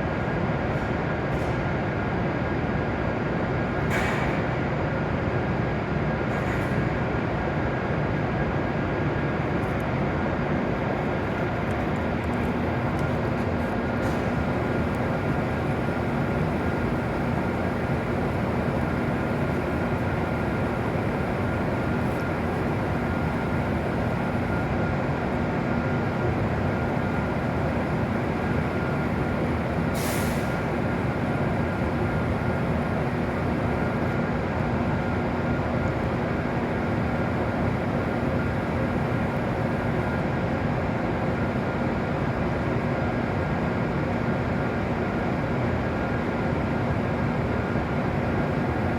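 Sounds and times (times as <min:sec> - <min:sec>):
train equipment humming: 0:08.5 - 0:43.4
air hiss: 0:29.9 - 0:30.6.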